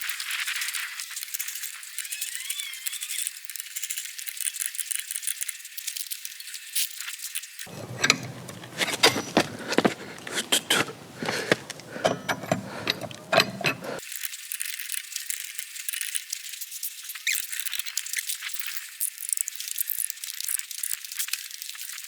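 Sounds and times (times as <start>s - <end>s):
wrench and wheel nuts clinking: 7.7s - 14.0s.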